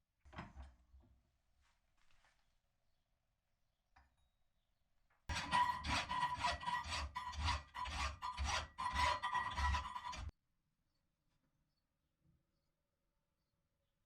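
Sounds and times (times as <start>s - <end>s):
hand file rasping on steel: 5.3s - 10.3s.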